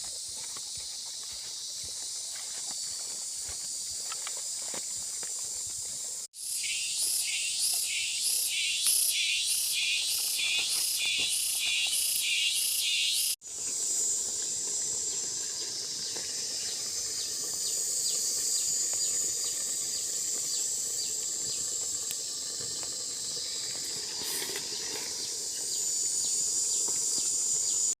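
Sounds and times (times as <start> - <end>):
high-pitched insect calls pulsing: 0.0 - 28.0
steady high insect hiss: 0.0 - 28.0
small ticks: 21.8 - 23.0.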